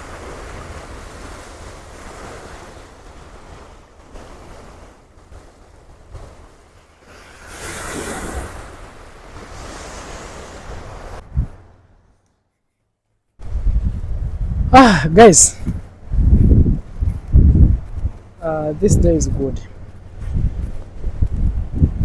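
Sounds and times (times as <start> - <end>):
waves breaking on beach: 0.0 - 11.8
wind buffeting microphone: 0.0 - 11.8, 13.4 - 22.0.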